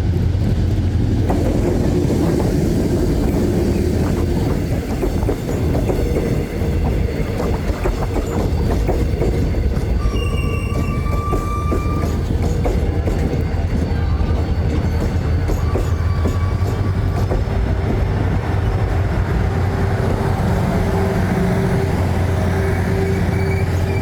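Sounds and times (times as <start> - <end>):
train rumbling on rails: 0.0 - 24.0
high squeal: 1.3 - 24.0.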